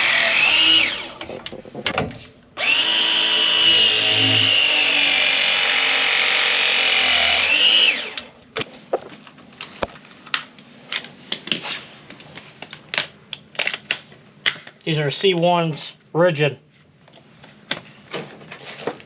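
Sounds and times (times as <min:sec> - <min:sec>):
power tool motor whining: 0:00.0 - 0:01.2, 0:02.6 - 0:08.3.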